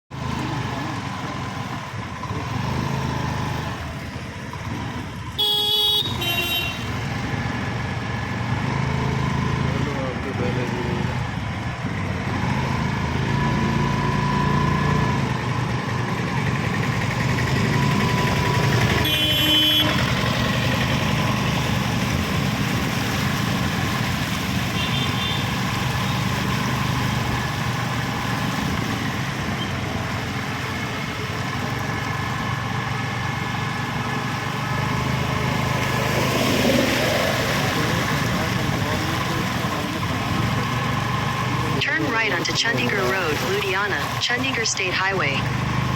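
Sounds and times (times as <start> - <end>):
road traffic: 0.1 - 45.9
vehicle engine running: 0.1 - 45.9
car horn blast: 5.4 - 7.0, 19.0 - 20.3, 24.8 - 25.5.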